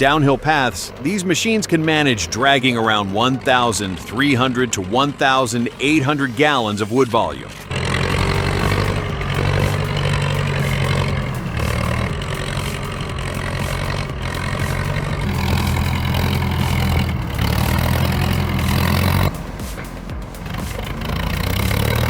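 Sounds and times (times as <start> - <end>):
tractor engine running under load: 0.0 - 22.0.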